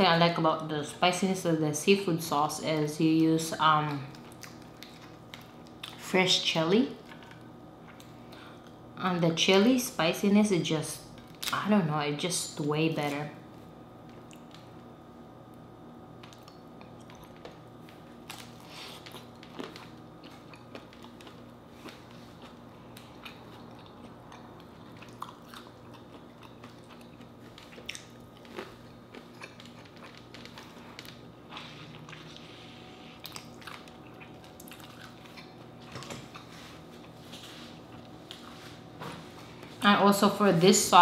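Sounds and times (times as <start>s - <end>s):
faint steady hum: 0.0s - 41.0s
person chewing food: 4.1s - 6.0s, 16.2s - 38.8s.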